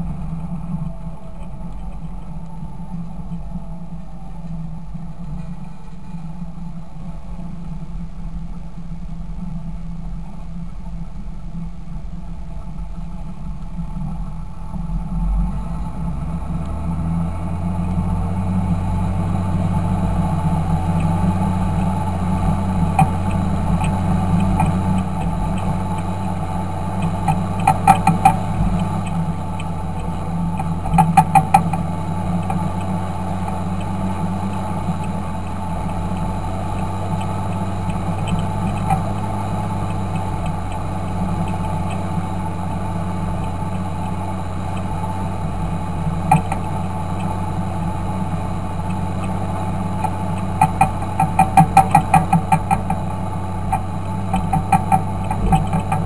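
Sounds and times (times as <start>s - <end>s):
tractor diesel engine running: 0.0s - 56.0s
rapid clicking: 20.9s - 47.9s, 48.6s - 56.0s.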